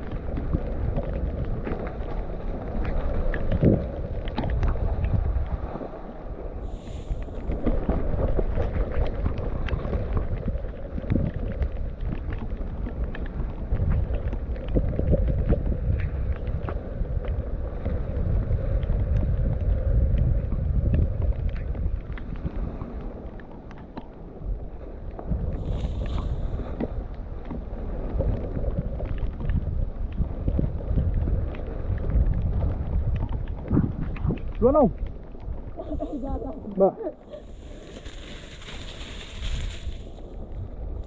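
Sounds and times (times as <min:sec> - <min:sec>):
wind buffeting microphone: 0:00.0 - 0:41.0
bike tyre noise: 0:37.3 - 0:41.0
bike rattling over rough ground: 0:37.4 - 0:40.8.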